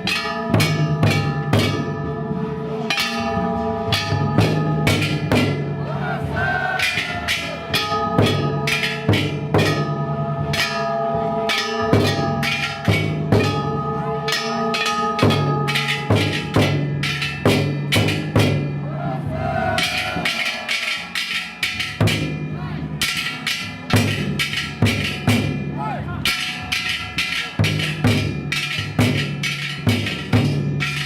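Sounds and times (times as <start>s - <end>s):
big taiko drum: 0.0s - 31.0s
hand-held gongs clanging: 0.0s - 31.0s.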